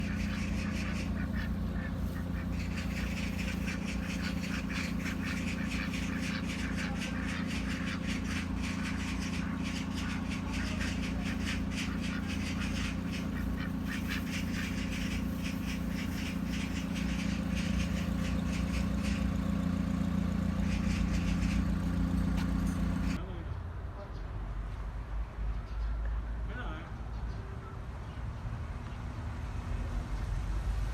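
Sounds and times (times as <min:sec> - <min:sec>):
ducks quacking: 0:00.0 - 0:23.2
steady low hum: 0:00.0 - 0:23.2.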